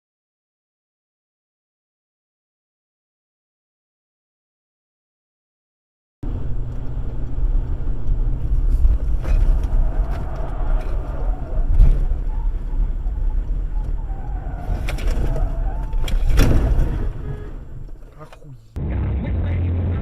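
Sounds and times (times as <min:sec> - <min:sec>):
car cabin rumble: 0:06.2 - 0:18.8.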